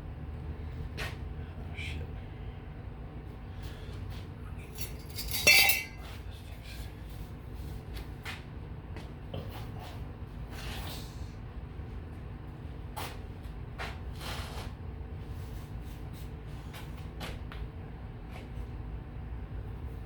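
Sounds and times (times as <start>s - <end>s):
ringing metal clink: 4.8s - 6.1s
metal pieces being handled: 4.8s - 6.2s.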